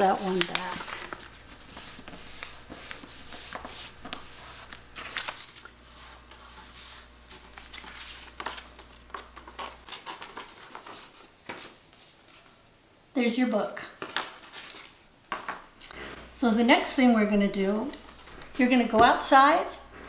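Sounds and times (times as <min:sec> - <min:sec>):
paper rustling and crinkling: 0:00.0 - 0:12.6, 0:14.0 - 0:16.3.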